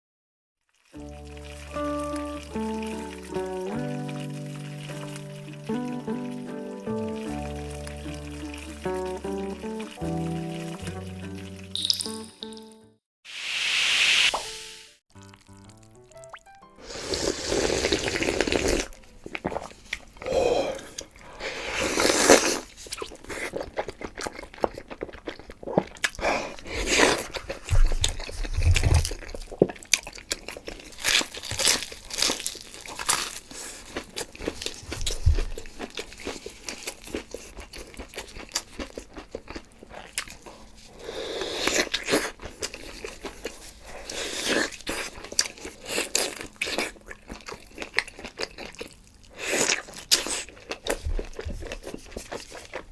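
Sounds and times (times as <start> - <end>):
crunchy bites and chewing: 21.8 - 41.0, 41.6 - 52.9.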